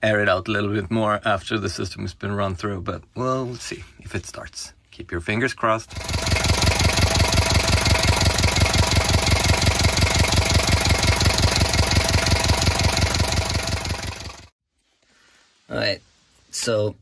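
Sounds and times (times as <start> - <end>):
diesel engine knocking: 5.9 - 14.5.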